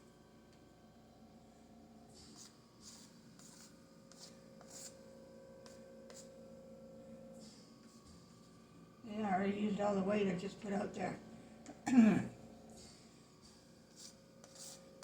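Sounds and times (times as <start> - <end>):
palette knife scraping paint: 2.2 - 6.3, 13.9 - 15.0.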